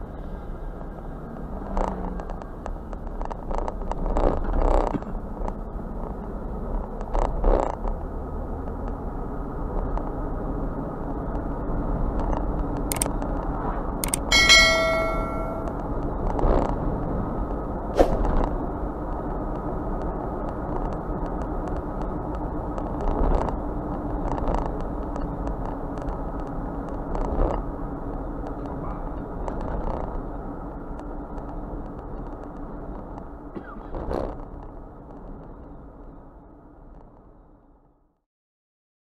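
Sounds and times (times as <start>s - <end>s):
train rumbling past: 13.4s - 20.7s.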